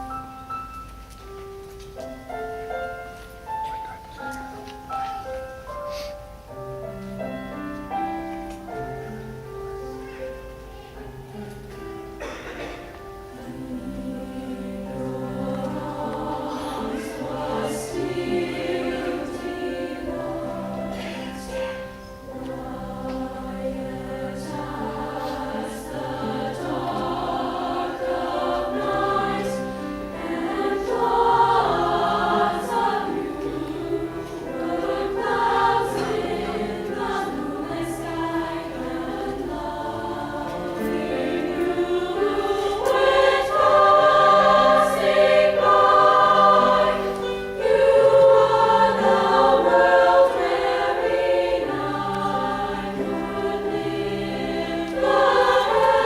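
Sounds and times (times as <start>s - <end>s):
piano accompaniment: 0.0s - 56.0s
women's choir singing: 12.2s - 56.0s.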